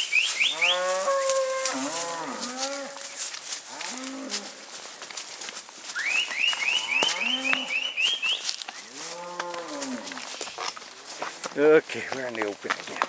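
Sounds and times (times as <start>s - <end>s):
high rising whistled chirps: 0.0s - 0.8s, 5.9s - 8.9s
brush and branches snapping: 0.9s - 11.6s
cattle mooing: 6.7s - 7.8s.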